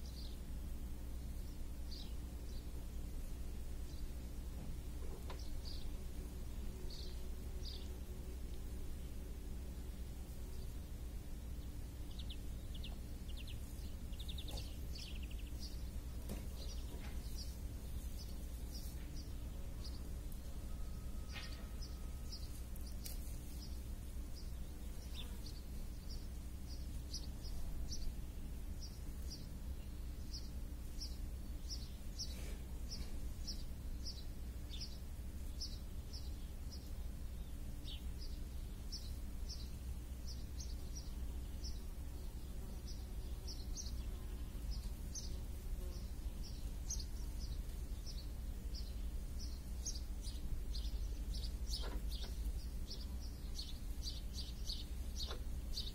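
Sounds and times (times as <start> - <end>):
low background rumble: 0.0 - 55.9
small bird chirping: 12.0 - 20.0, 37.8 - 55.9.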